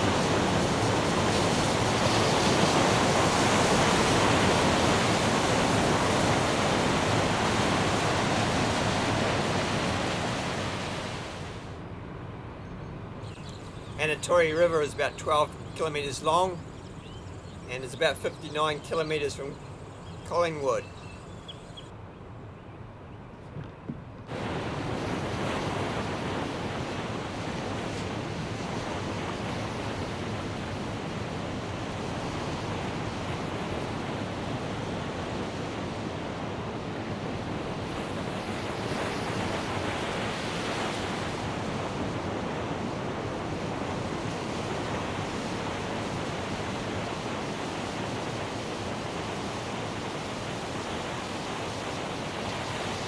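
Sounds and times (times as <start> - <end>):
water rushing: 0.0 - 11.7, 13.3 - 21.9.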